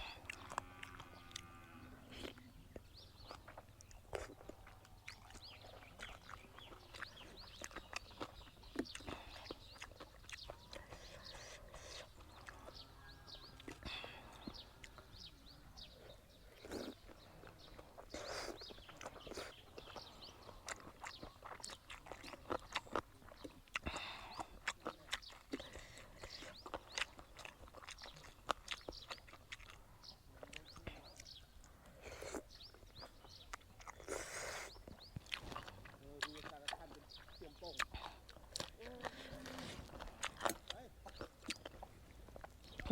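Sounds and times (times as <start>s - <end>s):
birds chirping: 0.0s - 42.9s
person chewing crunchy food: 0.0s - 42.9s
wet mouth clicks: 30.5s - 42.9s.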